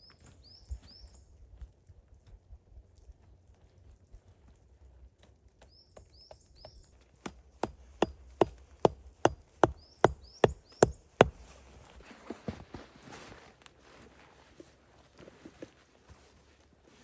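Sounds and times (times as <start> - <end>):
small bird chirping: 5.6 - 7.0, 9.2 - 11.5
axe chopping wood: 7.2 - 11.7.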